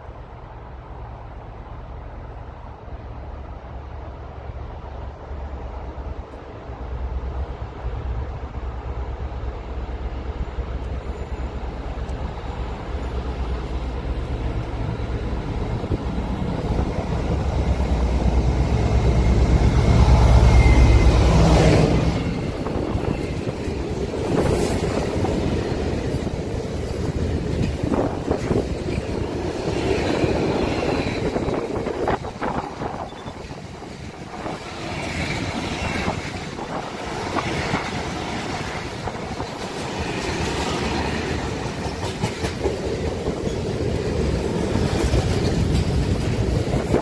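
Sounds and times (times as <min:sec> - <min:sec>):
diesel locomotive engine rumble: 0:00.0 - 0:47.0
train wagons rolling: 0:09.8 - 0:47.0
wheels clicking over rail joints: 0:22.5 - 0:47.0.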